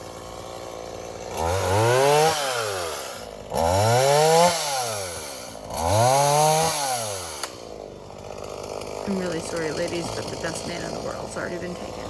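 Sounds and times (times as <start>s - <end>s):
chainsaw revving: 0.0s - 12.0s.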